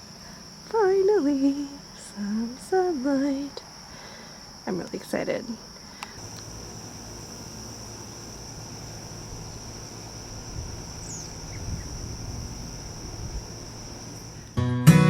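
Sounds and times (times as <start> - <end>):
high-pitched insect drone: 6.0 - 14.6
low background rumble: 6.2 - 14.6.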